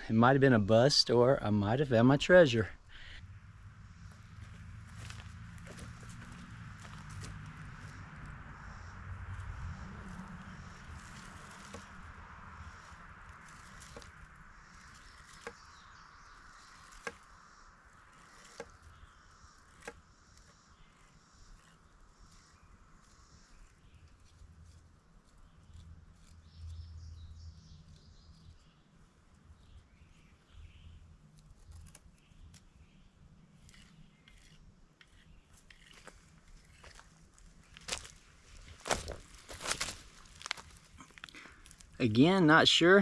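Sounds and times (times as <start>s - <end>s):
dry plant stalks rustling: 2.3s - 42.1s
stalks snapping: 10.7s - 15.7s, 16.4s - 17.4s, 18.0s - 19.0s, 19.6s - 22.4s, 31.3s - 32.7s, 33.6s - 42.0s.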